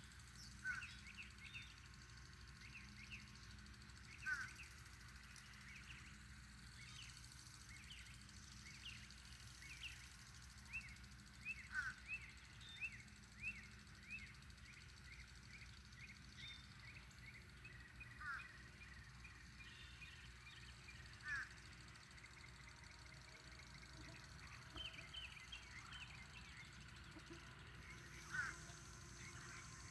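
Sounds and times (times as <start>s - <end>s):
faint low hum: 0.0s - 29.9s
birds chirping: 6.8s - 29.9s.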